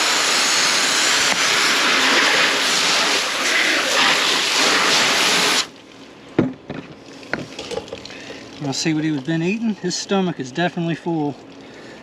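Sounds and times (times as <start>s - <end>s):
hose spraying water: 0.0s - 5.8s, 7.1s - 9.6s.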